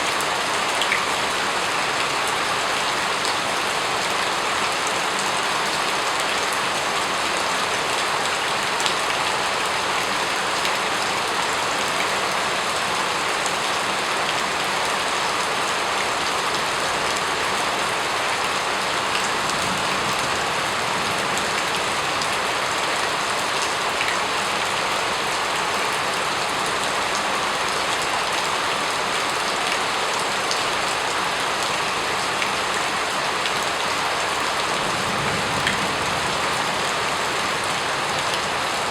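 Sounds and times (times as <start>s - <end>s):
steady rain hiss: 0.2s - 38.9s
rain drops ticking: 1.9s - 28.5s.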